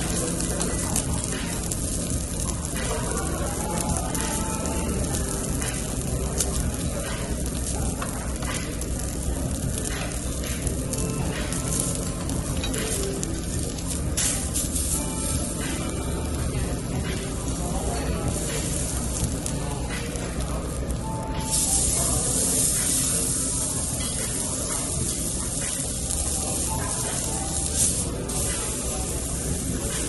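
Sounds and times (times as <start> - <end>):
crackles and pops: 0.0 - 15.0
beef sizzling on a grill: 0.0 - 30.0.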